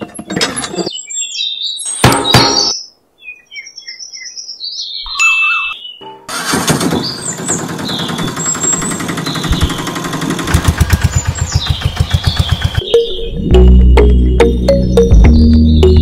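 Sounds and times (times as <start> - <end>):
engine chugging: 6.3 - 13.0.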